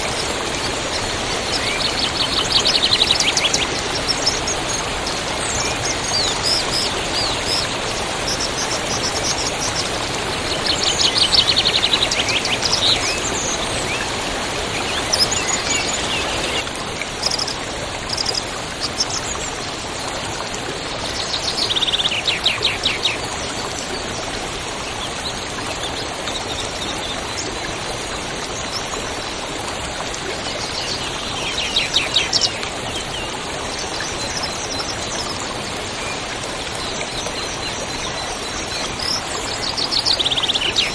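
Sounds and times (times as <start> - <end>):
river water rushing: 0.0 - 40.9
songbirds calling: 30.4 - 40.9.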